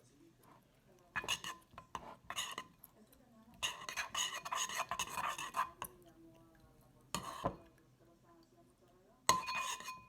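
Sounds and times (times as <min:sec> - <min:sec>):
utensil scraping slime in a bowl: 0:01.2 - 0:02.8, 0:03.6 - 0:06.0, 0:07.2 - 0:07.6, 0:09.3 - 0:10.0.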